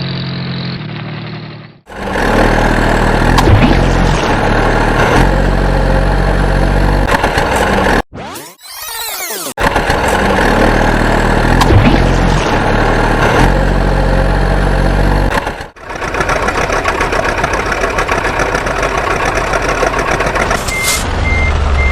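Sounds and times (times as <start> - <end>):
truck engine running: 0.0 - 8.1, 9.5 - 21.9.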